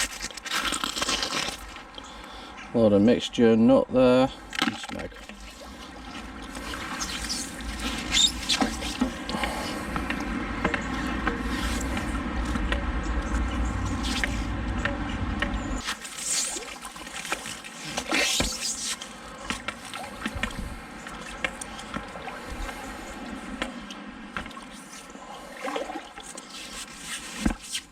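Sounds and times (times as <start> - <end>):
river water sloshing around legs: 4.4 - 27.9
sharp water splashes: 4.5 - 10.4, 15.8 - 27.7
low rumble: 5.6 - 15.9.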